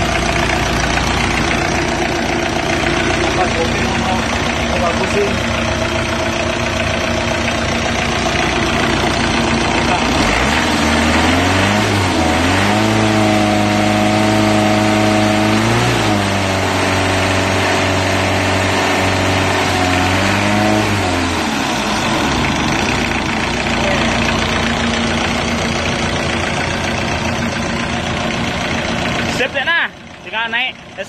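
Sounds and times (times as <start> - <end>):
engine idling and revving: 0.0 - 31.0.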